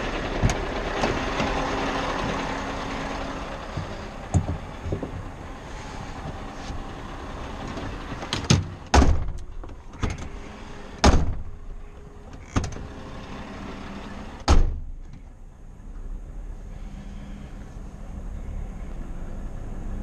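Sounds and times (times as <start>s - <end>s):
truck engine humming: 0.0s - 20.0s
sharp bangs and clunks: 7.7s - 10.4s, 11.0s - 11.6s, 14.4s - 15.2s.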